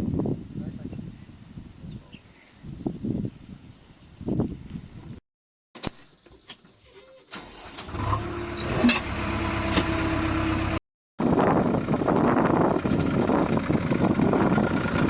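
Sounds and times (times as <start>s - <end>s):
high-pitched beep: 5.8s - 9.2s
heavy machine engine running: 7.8s - 15.0s.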